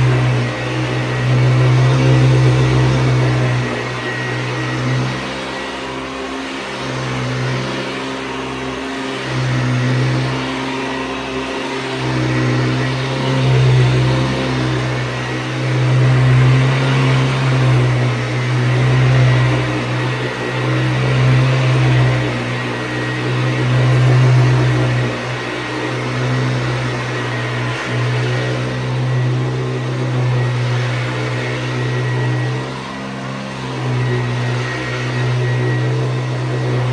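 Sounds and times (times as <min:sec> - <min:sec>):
vacuum cleaner running: 0:00.0 - 0:36.9.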